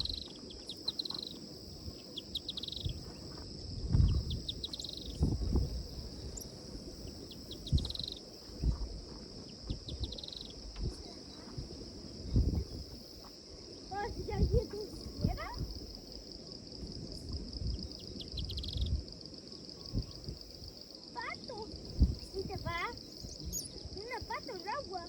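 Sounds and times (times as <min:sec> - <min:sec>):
insects buzzing: 0:00.0 - 0:25.0
insects pulsing chirps: 0:00.0 - 0:25.0
low thumps: 0:02.8 - 0:06.2.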